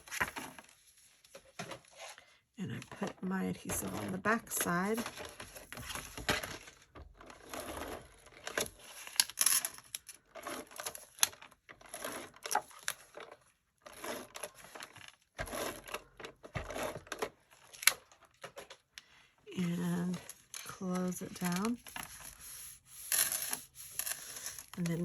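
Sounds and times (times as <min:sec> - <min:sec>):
paper being handled: 0:21.0 - 0:25.0
tape runner drawn across cardstock: 0:21.9 - 0:24.9.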